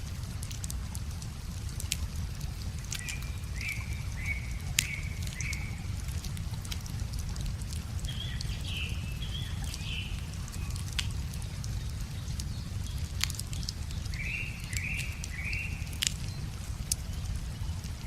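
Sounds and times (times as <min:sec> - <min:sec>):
flowing river water: 0:00.0 - 0:18.0
wood fire crackling: 0:00.0 - 0:18.0
bird calling: 0:03.0 - 0:06.0.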